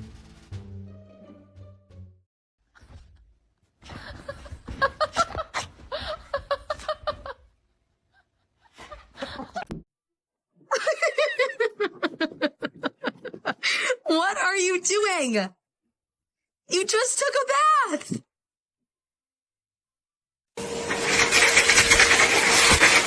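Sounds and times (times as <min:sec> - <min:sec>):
person laughing heartily: 0:03.8 - 0:09.8, 0:10.6 - 0:14.0.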